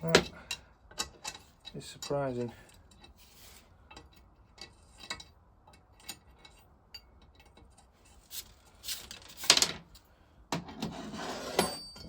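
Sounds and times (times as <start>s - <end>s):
metal parts and tools clinking: 11.5s - 12.0s.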